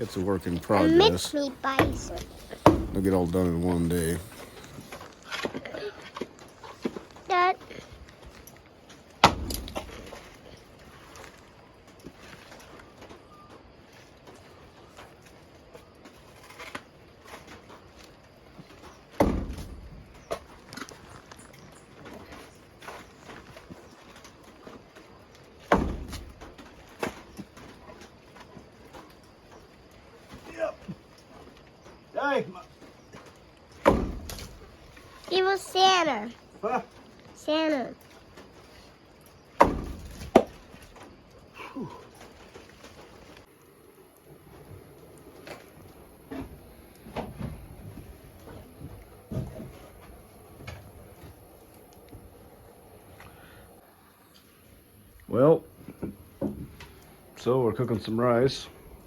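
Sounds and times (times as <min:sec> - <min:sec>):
sharp knocks: 0:01.7 - 0:03.1
heavy thud: 0:01.7 - 0:03.2.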